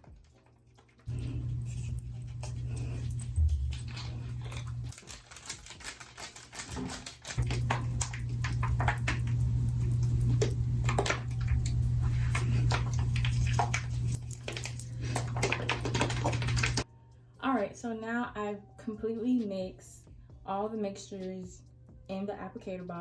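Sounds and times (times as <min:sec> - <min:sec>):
steady low hum: 0:01.1 - 0:04.9, 0:07.4 - 0:17.3
plastic bottle rattling when shaken: 0:03.4 - 0:09.5, 0:10.3 - 0:16.8.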